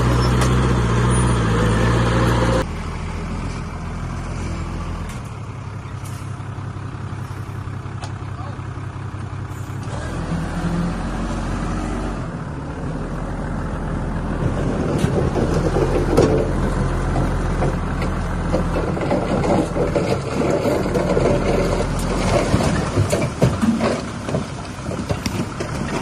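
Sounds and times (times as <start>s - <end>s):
heavy machinery diesel engine: 0.0s - 26.0s
clanks and rough scraping: 14.2s - 26.0s.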